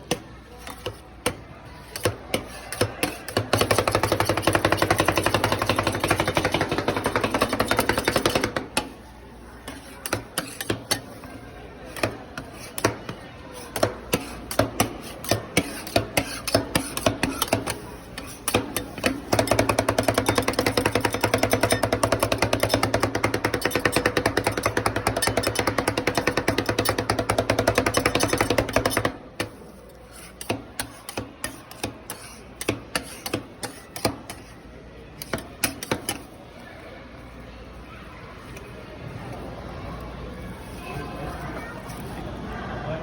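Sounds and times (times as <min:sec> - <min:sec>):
metal spatulas chopping: 0:00.0 - 0:34.6, 0:35.2 - 0:36.3
spatula taps and scrapes: 0:00.0 - 0:34.6, 0:35.2 - 0:36.4.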